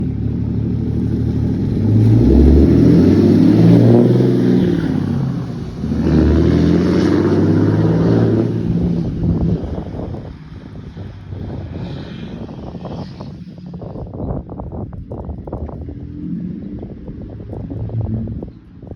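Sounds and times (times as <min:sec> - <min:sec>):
truck engine revving: 0:00.0 - 0:10.3, 0:15.4 - 0:18.9.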